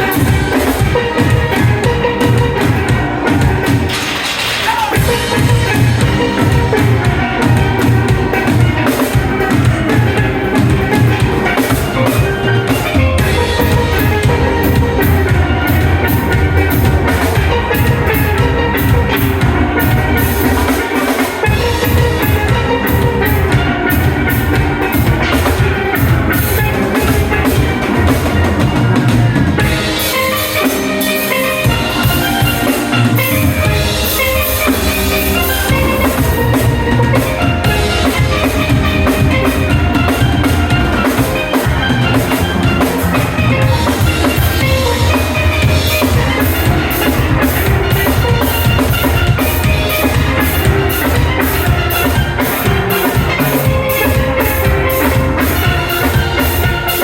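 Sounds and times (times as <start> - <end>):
drum kit: 0.0 - 57.0
steel pans melody: 0.0 - 57.0.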